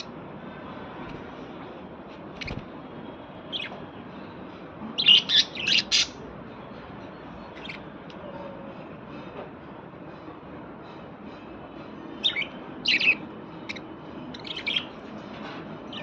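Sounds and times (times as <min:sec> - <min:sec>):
small birds chirping: 0:02.4 - 0:02.7, 0:03.4 - 0:03.8, 0:05.0 - 0:06.3, 0:07.4 - 0:07.9, 0:12.2 - 0:15.0.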